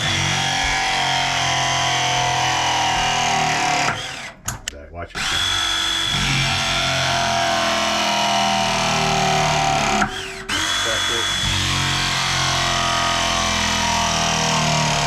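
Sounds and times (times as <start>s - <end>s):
power drill running: 0.0s - 4.5s, 5.2s - 15.0s.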